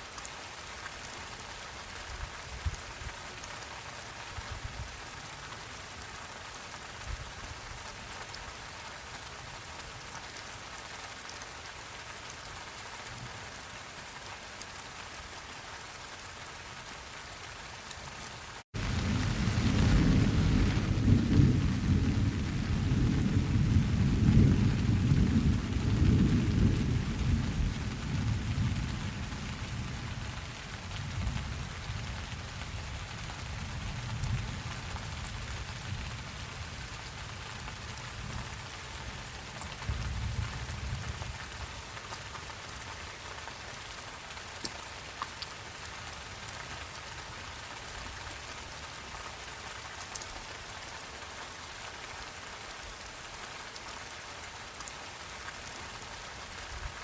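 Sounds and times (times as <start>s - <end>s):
steady rain: 0.0s - 57.0s
low rumble of thunder: 18.8s - 38.6s, 39.8s - 41.4s.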